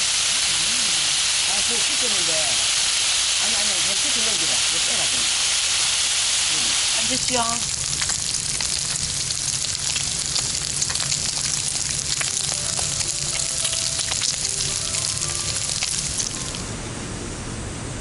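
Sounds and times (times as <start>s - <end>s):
food sizzling in a hot pan: 0.0s - 16.7s.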